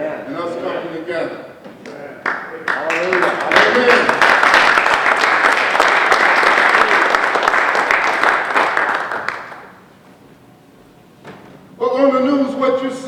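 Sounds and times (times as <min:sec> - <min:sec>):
crowd applauding: 0:02.2 - 0:09.9.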